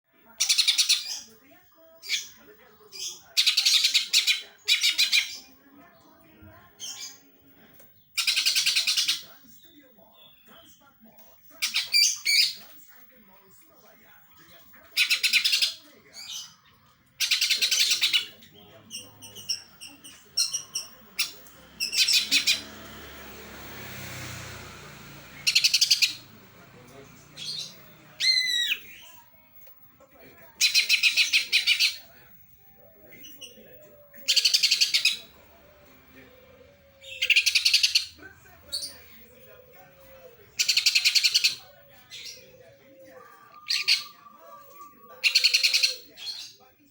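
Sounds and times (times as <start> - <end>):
bird chirping and chattering: 0.4 - 1.4, 2.0 - 5.6, 6.8 - 7.3, 7.9 - 10.8, 11.6 - 12.7, 14.8 - 22.9, 25.4 - 29.3, 30.6 - 32.3, 32.9 - 46.7.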